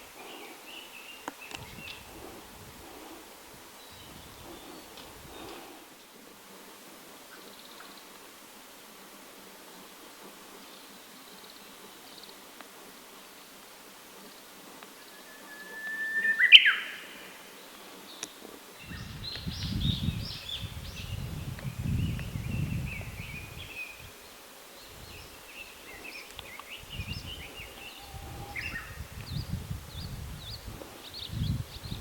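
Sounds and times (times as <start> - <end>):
loud whistled bird note: 15.0 - 17.4.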